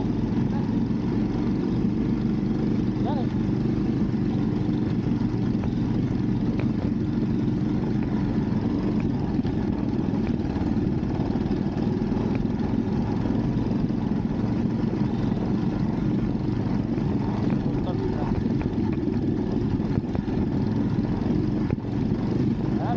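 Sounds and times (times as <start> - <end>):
motorcycle engine drone: 0.0 - 22.9
wind rushing over microphone: 15.6 - 22.9.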